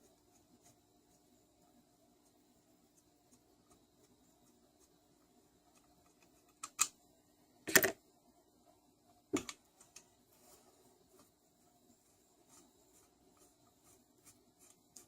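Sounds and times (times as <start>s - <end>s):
tools clicking and knocking: 7.7s - 8.0s.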